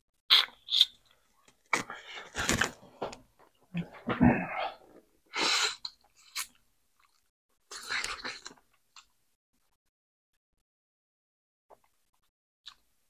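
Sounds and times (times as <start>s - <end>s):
person chewing: 0.3s - 2.7s, 5.5s - 9.1s.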